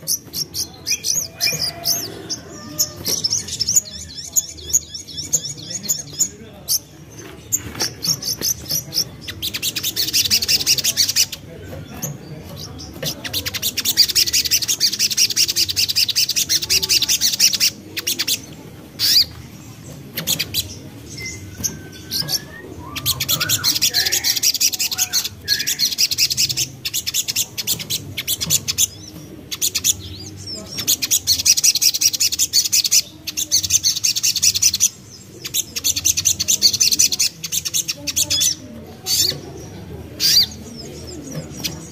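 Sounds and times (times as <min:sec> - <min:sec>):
songbird chattering trill: 0:00.0 - 0:41.9
lower whistled bird notes: 0:21.1 - 0:26.6.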